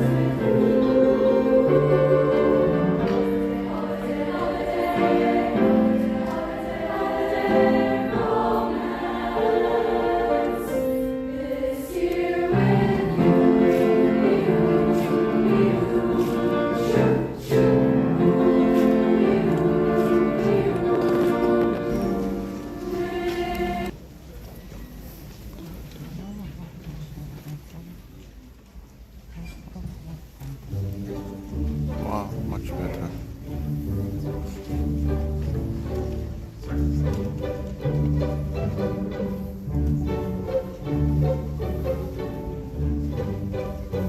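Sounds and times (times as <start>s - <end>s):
choir singing sustained chords: 0.0s - 23.9s.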